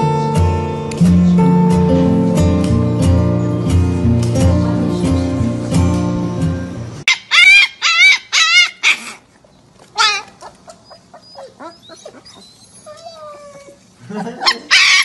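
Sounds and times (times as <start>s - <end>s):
puppies yipping: 7.0s - 15.0s
puppies whimpering and whining: 10.0s - 15.0s.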